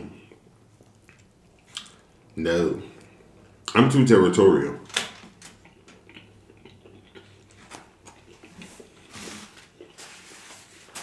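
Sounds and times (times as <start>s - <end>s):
man chewing food: 0.2s - 2.4s, 5.5s - 10.5s.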